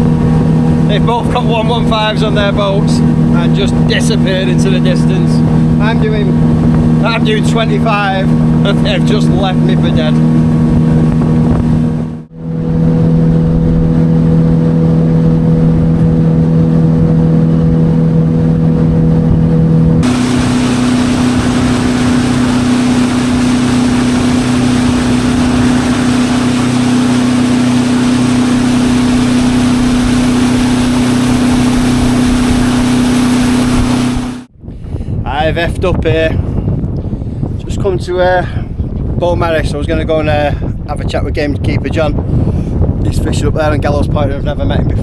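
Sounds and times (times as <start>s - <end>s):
outboard motor running: 0.0s - 34.5s
wind and water hiss: 20.0s - 34.5s.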